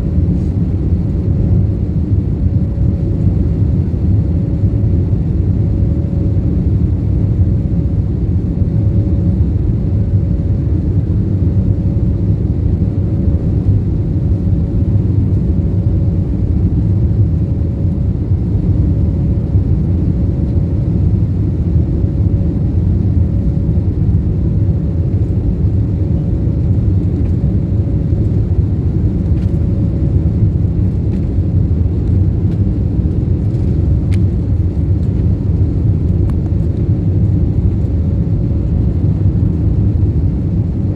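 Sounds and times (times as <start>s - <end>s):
jet engine cabin rumble: 0.0s - 40.9s.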